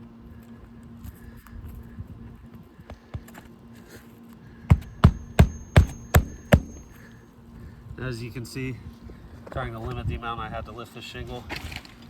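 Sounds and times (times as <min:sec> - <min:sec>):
hammer striking nail: 0:04.7 - 0:07.0.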